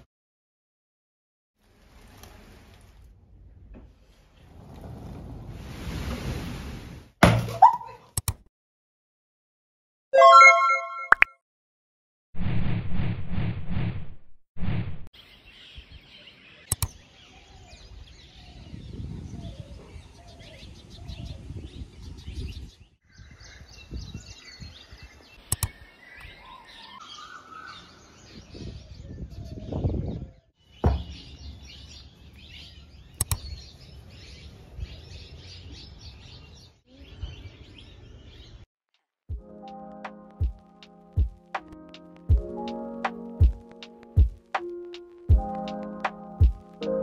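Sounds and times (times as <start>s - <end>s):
birds chirping: 15.2s - 38.6s
sharp clicks: 16.7s - 17.0s, 25.5s - 25.8s, 33.1s - 33.5s.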